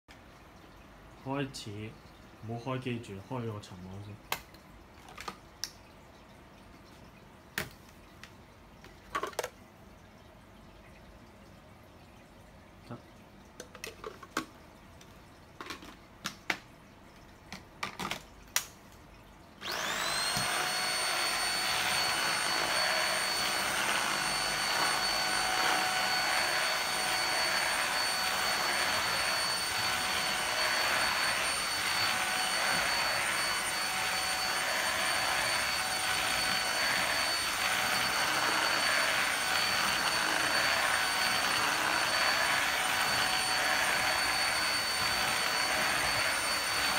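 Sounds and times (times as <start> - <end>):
plastic clicks and knocks: 9.0 - 9.6, 13.6 - 14.6, 17.5 - 18.7
vacuum cleaner motor whining: 19.6 - 46.9.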